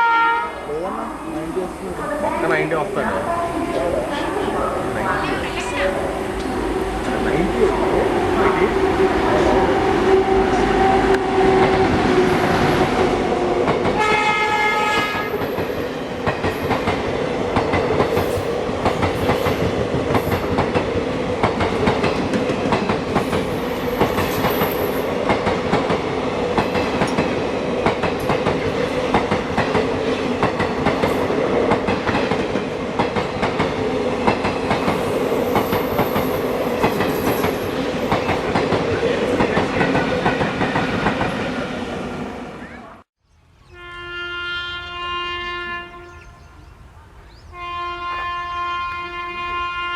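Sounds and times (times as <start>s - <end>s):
train horn blast: 0.0s - 0.7s, 5.1s - 12.8s, 14.0s - 15.4s, 43.7s - 46.6s, 47.5s - 49.9s
train passing close by: 0.0s - 43.1s, 43.7s - 49.9s.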